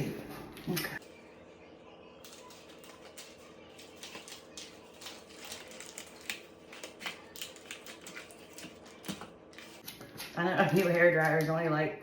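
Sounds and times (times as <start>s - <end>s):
tape and cardboard crinkling: 2.3s - 11.5s.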